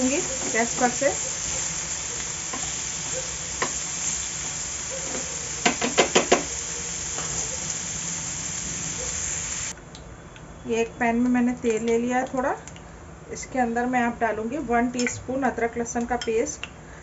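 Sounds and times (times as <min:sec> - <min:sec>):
chicken sizzling in hot oil: 0:00.0 - 0:09.7.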